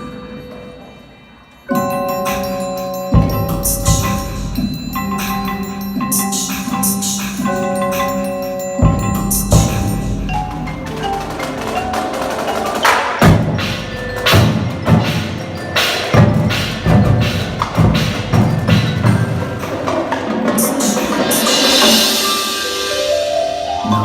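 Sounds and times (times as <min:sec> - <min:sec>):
loud percussion hits: 0:01.7 - 0:24.0
marimba notes ringing: 0:01.7 - 0:24.0.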